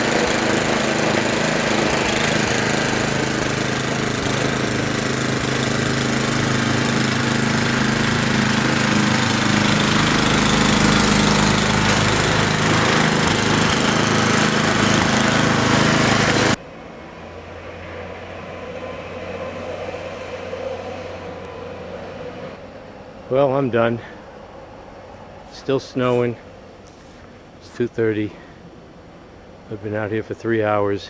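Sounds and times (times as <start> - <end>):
snow blower engine running: 0.0 - 16.6.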